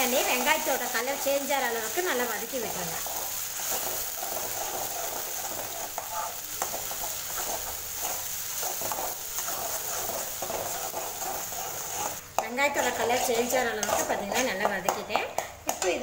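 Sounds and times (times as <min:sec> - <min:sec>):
onion paste sizzling in oil: 0:00.0 - 0:16.0
spatula scraping pan: 0:00.0 - 0:16.0.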